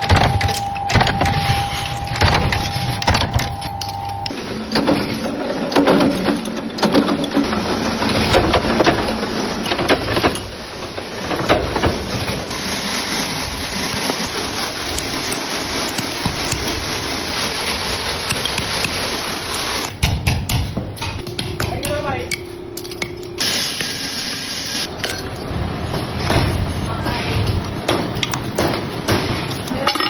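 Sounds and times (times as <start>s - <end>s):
sharp knocks and clanks: 0.0s - 12.5s, 19.8s - 23.9s, 27.5s - 30.0s
workshop machinery running: 0.0s - 30.0s.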